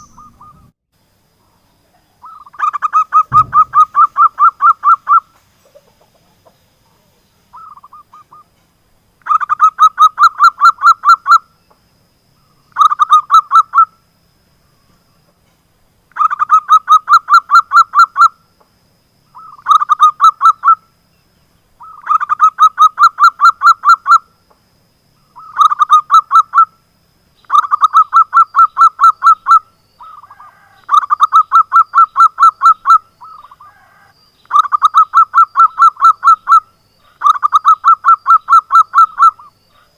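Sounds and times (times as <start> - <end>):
dove cooing in staccato notes: 2.2 - 8.4, 27.5 - 39.9.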